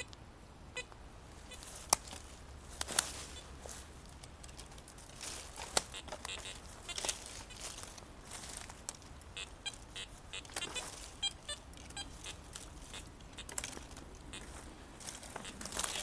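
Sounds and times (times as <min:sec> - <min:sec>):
rustling in dry leaves: 0:01.2 - 0:16.0
short high-pitched beeps: 0:05.9 - 0:07.0.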